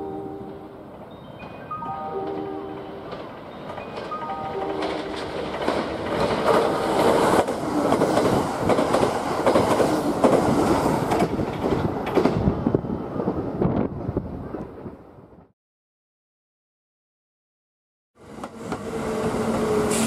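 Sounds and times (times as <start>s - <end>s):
electric train rumbling past: 0.0s - 15.5s, 18.2s - 20.0s
wheels clicking over rail joints: 3.0s - 12.5s.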